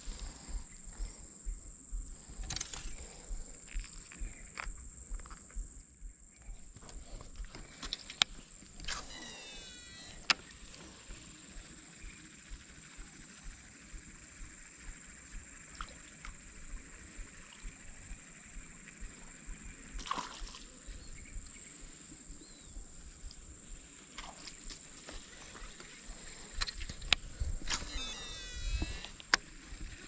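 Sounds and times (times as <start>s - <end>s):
high-pitched insect drone: 0.0s - 30.0s
sharp clicks: 2.2s - 5.6s, 6.8s - 12.6s, 25.8s - 29.6s.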